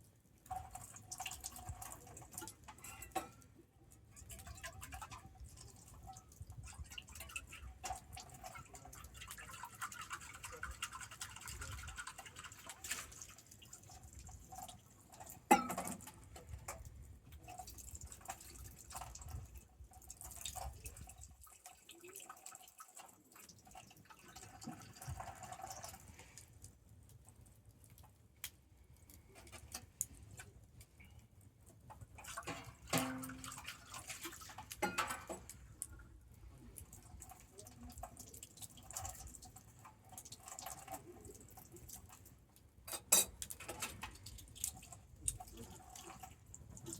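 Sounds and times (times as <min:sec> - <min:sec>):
wood bonfire crackling: 0:00.0 - 0:11.6, 0:12.5 - 0:46.9
fire popping: 0:25.1 - 0:33.6.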